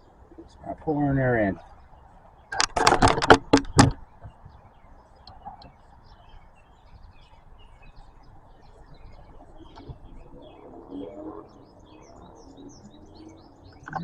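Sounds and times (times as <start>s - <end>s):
faint birdsong chirps: 0.0s - 14.0s
low steady background noise: 0.0s - 14.0s.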